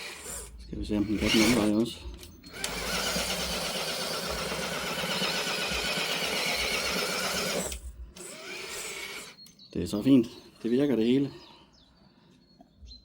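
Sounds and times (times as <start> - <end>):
electric motor and gears whining: 0.0 - 9.4.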